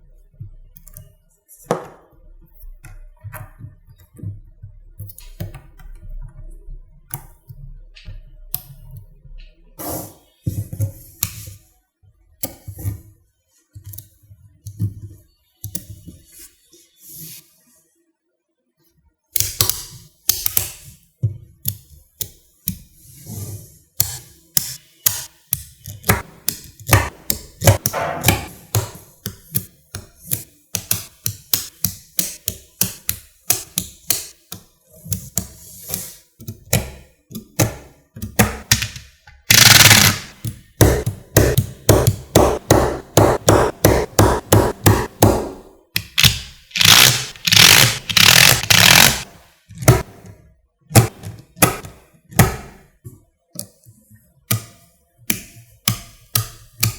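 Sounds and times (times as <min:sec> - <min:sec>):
magnetic balls clicking: 0:36.0 - 0:42.3, 0:45.9 - 0:50.1.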